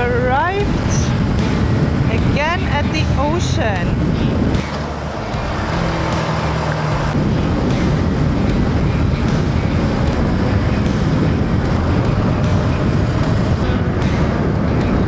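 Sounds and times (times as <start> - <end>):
road noise: 0.0 - 15.0
wind rush on microphone: 0.0 - 15.0
motorcycle engine: 3.8 - 15.0.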